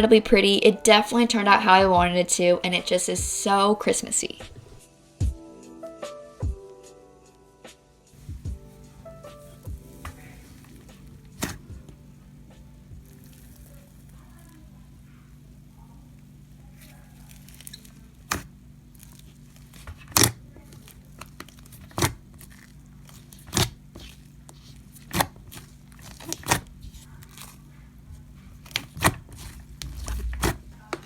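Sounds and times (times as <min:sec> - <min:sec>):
slime popping and crackling: 0:13.0 - 0:14.6, 0:16.6 - 0:27.7, 0:28.5 - 0:30.8.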